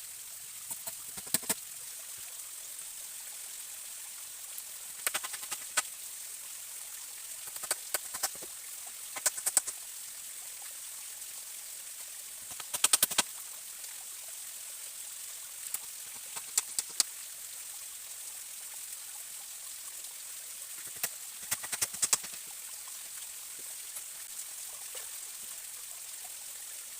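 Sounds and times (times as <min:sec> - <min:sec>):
stream running: 0:00.0 - 0:26.9
sharp clicks and knocks: 0:00.7 - 0:01.6, 0:05.0 - 0:05.8, 0:09.2 - 0:09.8, 0:12.5 - 0:13.2, 0:16.2 - 0:17.1, 0:20.8 - 0:22.4.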